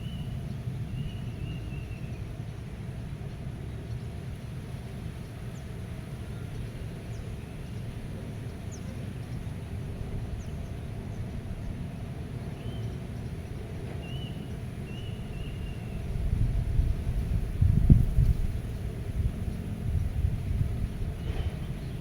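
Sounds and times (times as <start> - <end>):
low wind rumble: 14.8 - 22.0.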